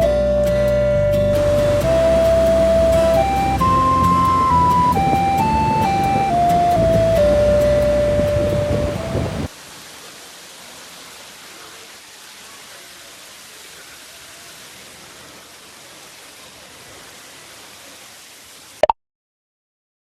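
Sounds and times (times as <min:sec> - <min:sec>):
steady ambient hiss: 0:01.3 - 0:18.8.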